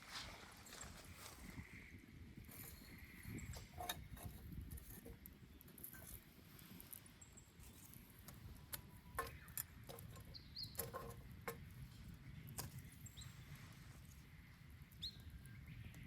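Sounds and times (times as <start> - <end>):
bonfire crackling and popping: 2.4 - 13.3.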